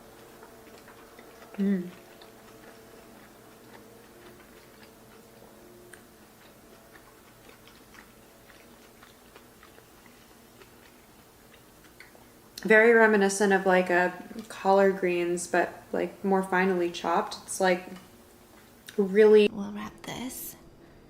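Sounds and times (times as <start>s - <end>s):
faint chewing: 0.0s - 19.1s.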